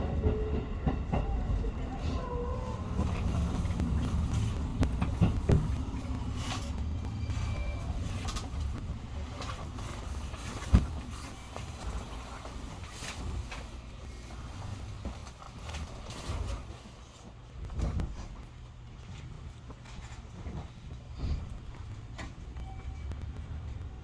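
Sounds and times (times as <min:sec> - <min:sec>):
train wheels knocking: 0:00.0 - 0:12.8
train rumbling on rails: 0:00.0 - 0:24.0.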